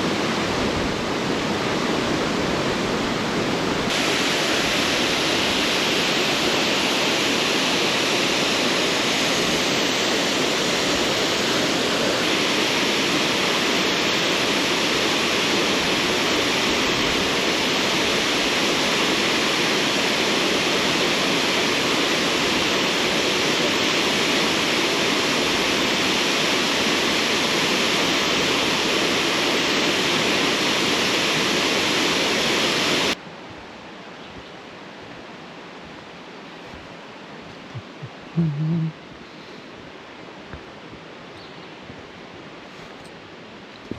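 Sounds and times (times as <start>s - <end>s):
waterfall roaring: 0.0s - 33.2s.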